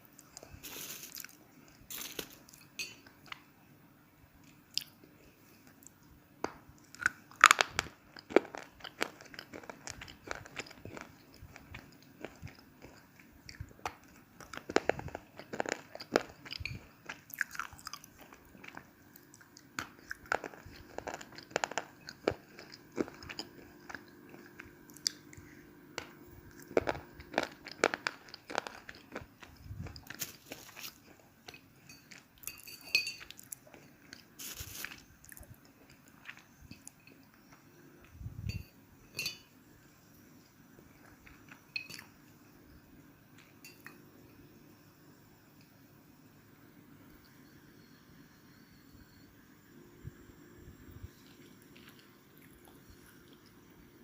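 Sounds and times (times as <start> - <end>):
crunching and chewing slate pencils: 0.2 - 3.4, 5.6 - 38.6, 40.8 - 42.2, 51.0 - 53.7.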